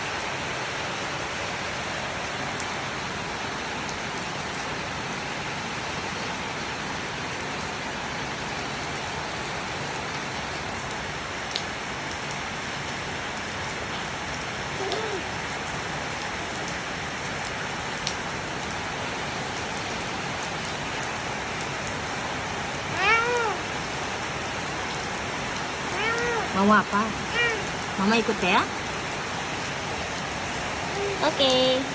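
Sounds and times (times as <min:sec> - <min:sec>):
heavy rain pattering: 0:00.0 - 0:31.9
toddler calling: 0:14.8 - 0:15.3, 0:22.9 - 0:23.7, 0:25.9 - 0:26.6, 0:27.2 - 0:27.8, 0:30.9 - 0:31.3.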